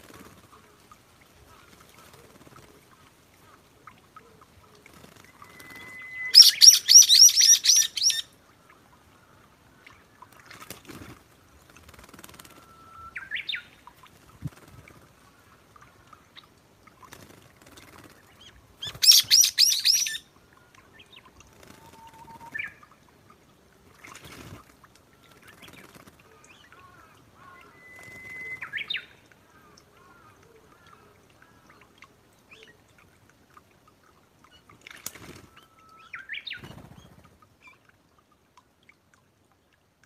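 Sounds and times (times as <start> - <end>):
thin bird whistles: 5.4 - 8.2, 27.6 - 29.0
harsh rapid bird calls: 5.4 - 8.3, 18.4 - 20.3
fluttering wing rustles: 10.4 - 12.8, 14.0 - 15.2, 34.9 - 35.6, 36.6 - 37.4.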